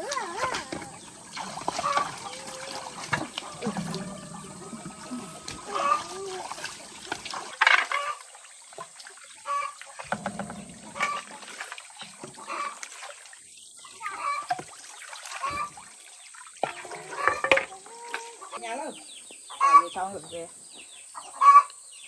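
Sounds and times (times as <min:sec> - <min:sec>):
water splashing and trickling: 0:00.0 - 0:20.5.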